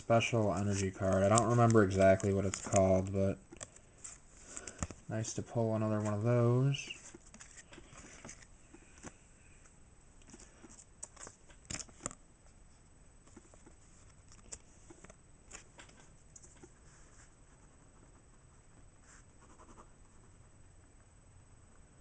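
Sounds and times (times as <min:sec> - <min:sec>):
cards and wrappers rustling: 0:00.0 - 0:09.2, 0:10.2 - 0:12.2.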